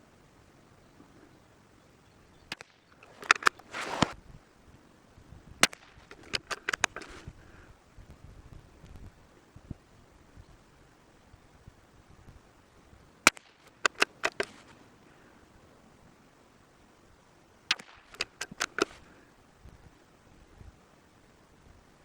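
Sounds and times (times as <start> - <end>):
rifle bolt clicks: 2.5 - 4.1, 5.6 - 7.2, 13.3 - 14.7, 17.7 - 19.0
rifle shot: 5.6 - 7.0, 13.3 - 14.6, 17.7 - 19.0.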